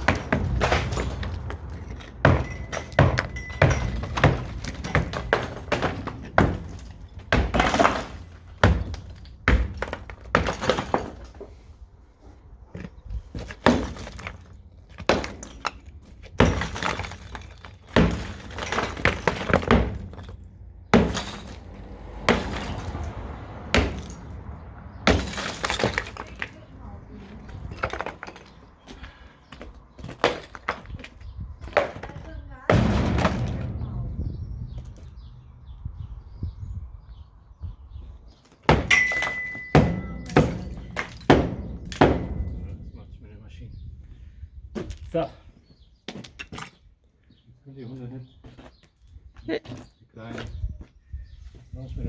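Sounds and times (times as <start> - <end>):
masonry breaking with heavy knocks: 0.0 - 11.6, 13.1 - 35.8, 38.6 - 43.2.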